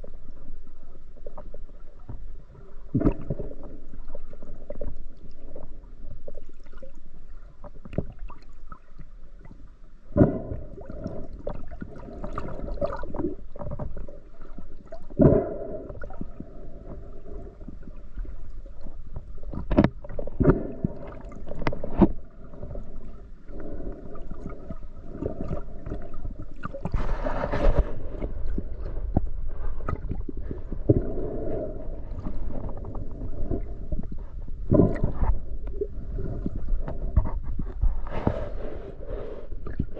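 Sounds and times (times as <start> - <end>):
bubbling: 1.2 - 39.9
underwater water rushing: 10.2 - 37.3.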